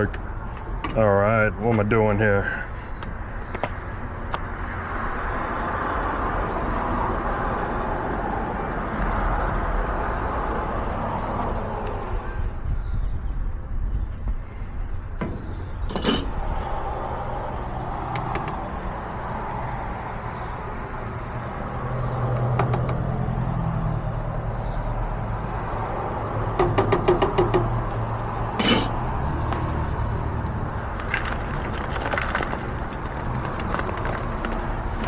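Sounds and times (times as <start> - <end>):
street traffic hum: 0.0 - 35.0.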